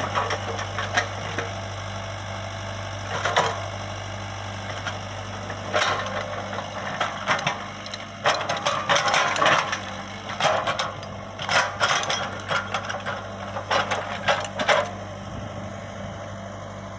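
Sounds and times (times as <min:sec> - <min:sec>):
excavator diesel engine running: 0:00.0 - 0:16.9
metallic clanking and rattling: 0:04.7 - 0:15.0.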